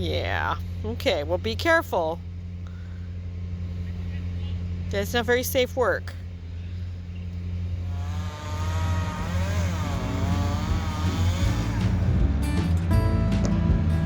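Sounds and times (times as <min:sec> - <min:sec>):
low engine hum: 0:00.0 - 0:14.0
chainsaw running: 0:06.2 - 0:12.8.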